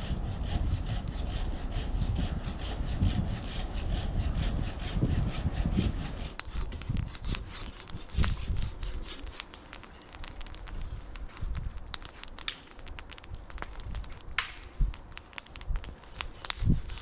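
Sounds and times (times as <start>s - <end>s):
dry wood crackling and snapping: 6.2s - 17.0s.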